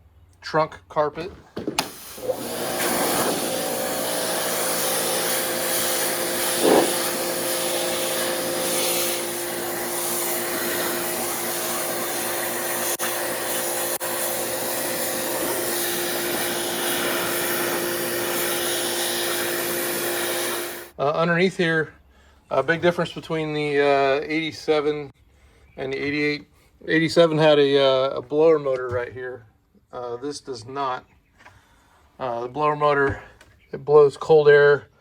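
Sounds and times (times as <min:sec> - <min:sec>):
pressure washer motor hum: 0:01.2 - 0:20.9
water spray hissing on carpet: 0:01.6 - 0:20.9.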